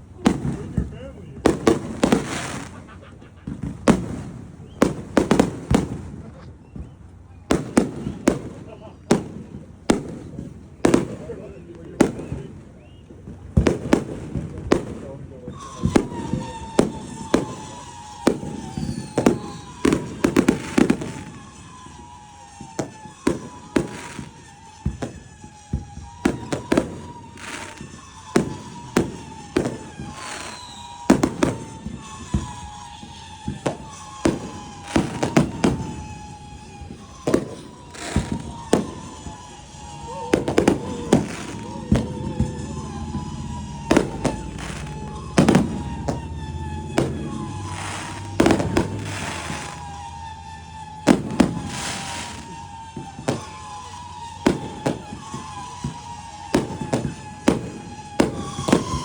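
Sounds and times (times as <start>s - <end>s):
fireworks bangs and booms: 0.0s - 59.0s
steady high tone: 40.0s - 50.2s.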